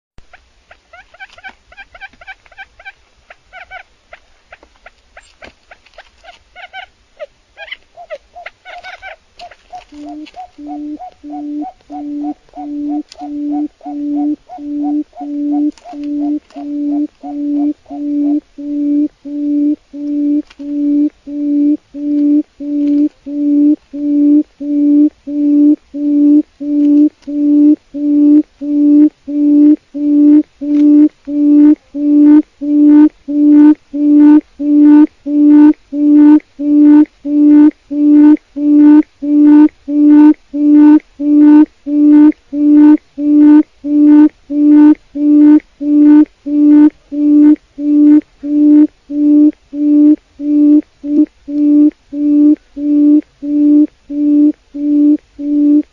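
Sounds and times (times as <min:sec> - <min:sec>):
quail hooting call: 0:00.7 - 0:03.9, 0:05.2 - 0:55.9.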